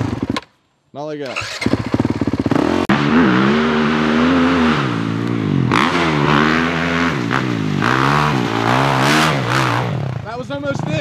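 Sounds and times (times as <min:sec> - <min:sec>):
dirt bike engine revving: 0:00.0 - 0:00.4, 0:01.2 - 0:11.0.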